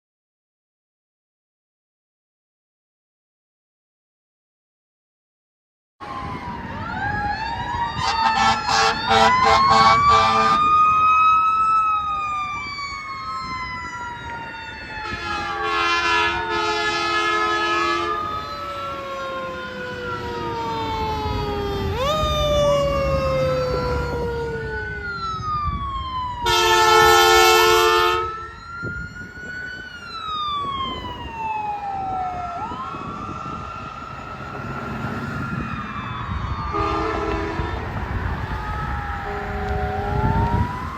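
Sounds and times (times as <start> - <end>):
emergency vehicle sirens wailing: 6.0 - 40.9
air horn blasts: 8.0 - 10.6, 15.0 - 18.3, 26.4 - 28.4, 36.7 - 37.8.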